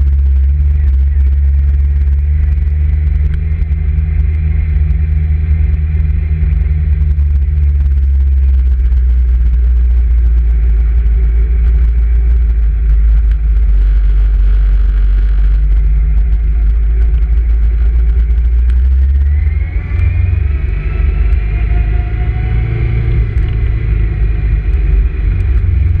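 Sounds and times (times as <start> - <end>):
motorcycle engine running: 0.0 - 26.0
wind rumble on microphone: 0.0 - 26.0.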